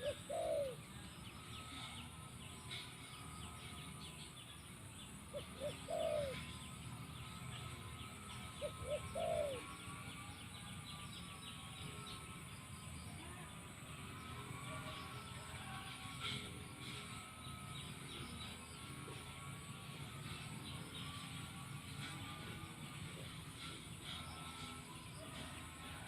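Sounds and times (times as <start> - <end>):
dove cooing: 0.0 - 1.0, 5.3 - 6.8, 8.0 - 10.0
small birds chirping: 0.0 - 25.7.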